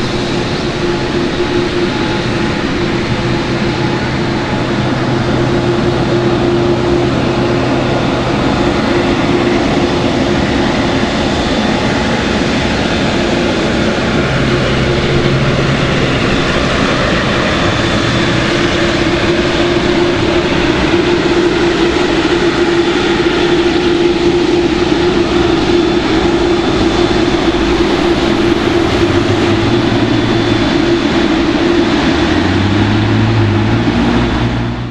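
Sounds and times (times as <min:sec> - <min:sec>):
jet engines running: 0:00.0 - 0:34.9.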